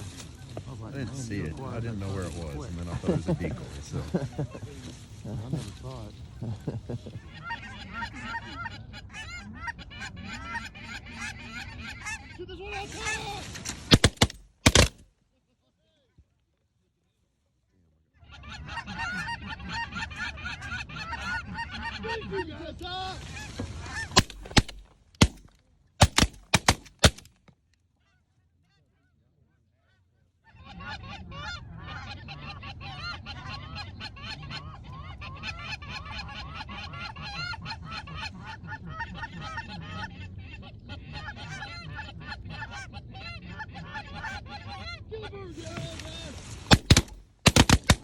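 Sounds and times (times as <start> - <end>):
shotgun shots: 13.9 - 15.0, 24.2 - 27.3, 46.7 - 48.0.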